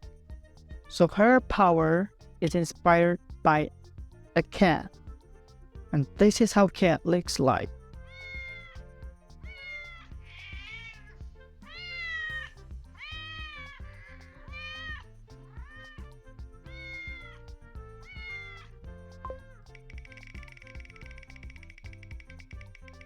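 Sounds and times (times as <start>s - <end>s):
background music: 0.0s - 23.0s
cat meowing: 8.1s - 8.8s, 9.5s - 11.1s, 11.7s - 15.0s, 15.6s - 18.7s.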